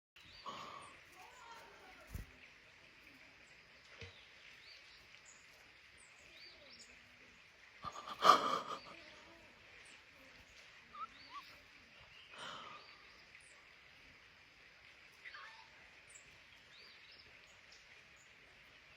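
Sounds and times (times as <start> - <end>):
bird chirps: 10.5 - 13.6.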